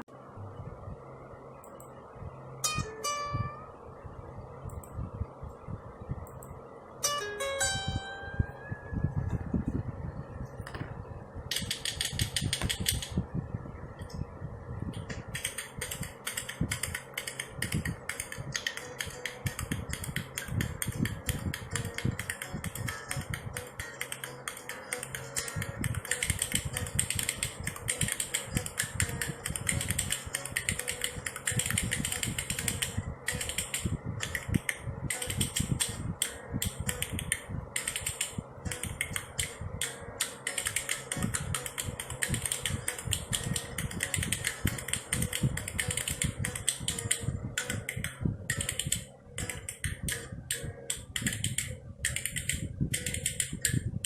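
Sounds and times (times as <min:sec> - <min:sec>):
spoons clacking rhythmically: 0:15.3 - 0:53.8.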